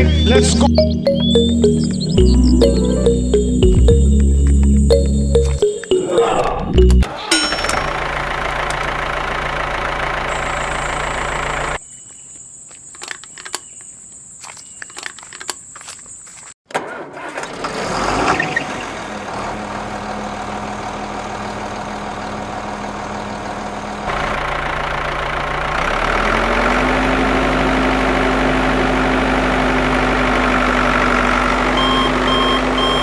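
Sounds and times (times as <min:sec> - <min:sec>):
engine running: 0:00.0 - 0:05.7, 0:06.7 - 0:11.8, 0:18.7 - 0:33.0
short beeps: 0:00.2 - 0:07.6, 0:31.8 - 0:33.0.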